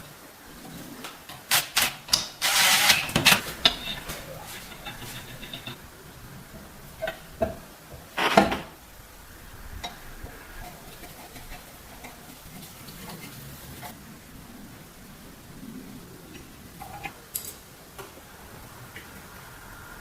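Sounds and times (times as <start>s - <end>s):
small metal parts clinking: 17.3s - 17.6s.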